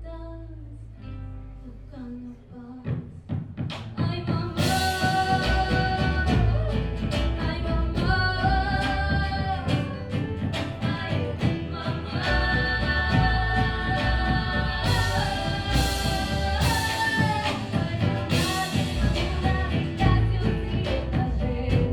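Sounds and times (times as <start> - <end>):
woman singing: 0.0 - 0.9, 1.6 - 21.9
band playing: 4.6 - 21.9.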